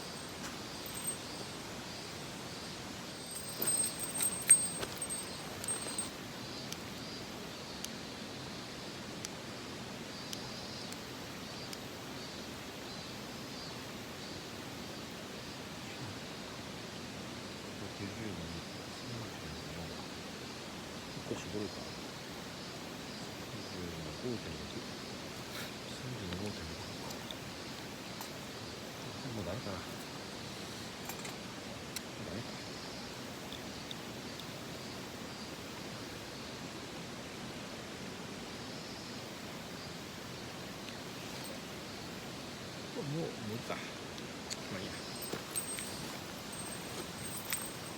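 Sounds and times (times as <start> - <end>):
faint high chirps: 0.0 - 6.8, 44.7 - 47.9.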